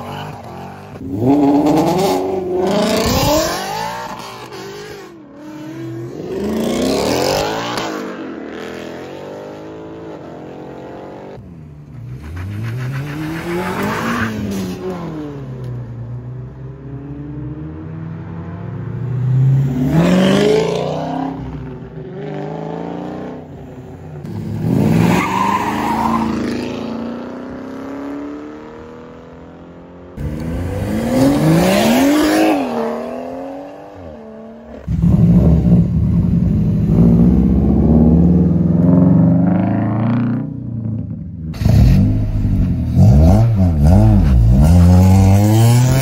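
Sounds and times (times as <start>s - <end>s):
car engine revving: 41.6s - 46.0s.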